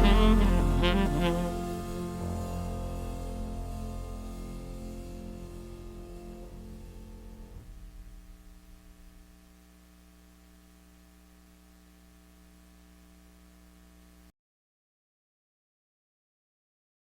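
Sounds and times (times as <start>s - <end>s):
background music: 0.0s - 7.9s
faint electrical hum with hiss: 0.0s - 14.3s.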